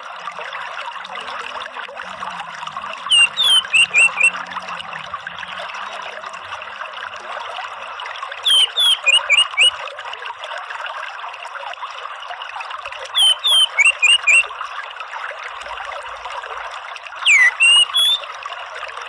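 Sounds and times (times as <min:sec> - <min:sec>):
running water trickle: 0:00.0 - 0:19.0
bird whistled notes: 0:03.1 - 0:04.4, 0:08.4 - 0:09.8, 0:13.2 - 0:14.5, 0:17.2 - 0:18.3.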